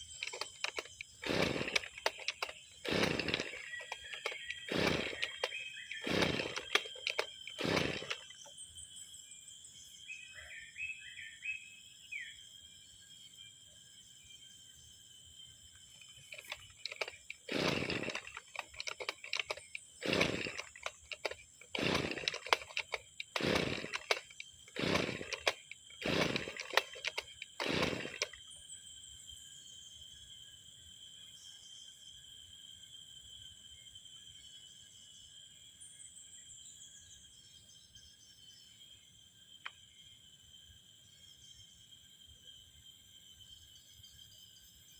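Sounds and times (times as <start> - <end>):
recoil starter cranking: 0.0 - 8.5, 16.1 - 28.4
insect chirping: 0.0 - 44.9.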